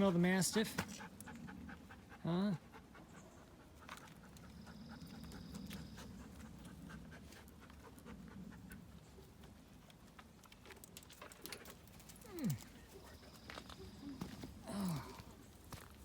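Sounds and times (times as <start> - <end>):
dog panting: 0.5 - 9.8.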